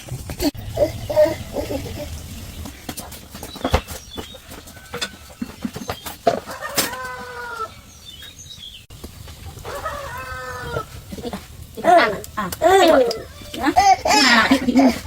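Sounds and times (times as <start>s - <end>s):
chicken calling: 6.5s - 7.9s, 9.5s - 11.0s.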